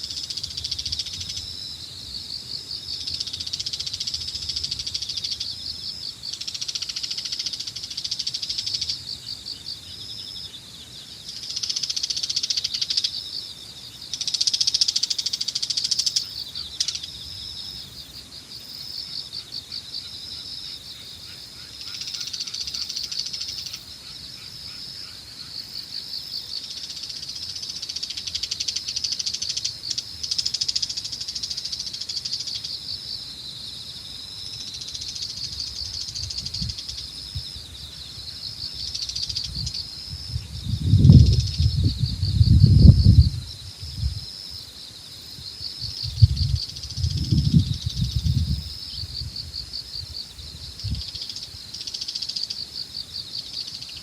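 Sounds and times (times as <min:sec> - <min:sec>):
insects chirping: 0:00.0 - 0:54.0
wind rumbling on microphone: 0:35.3 - 0:44.7, 0:45.3 - 0:51.7.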